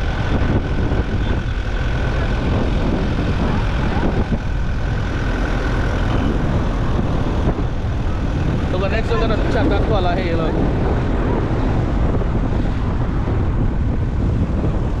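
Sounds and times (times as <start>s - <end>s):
car engine and tyre noise: 0.0s - 15.0s.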